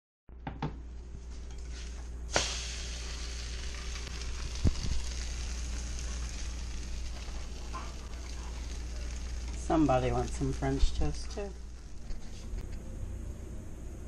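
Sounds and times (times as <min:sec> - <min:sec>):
toast sizzling in a pan: 0:01.4 - 0:12.6.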